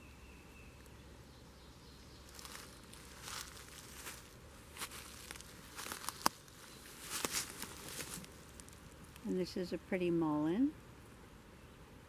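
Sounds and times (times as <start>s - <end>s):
plants rustling and crackling: 2.2s - 10.7s.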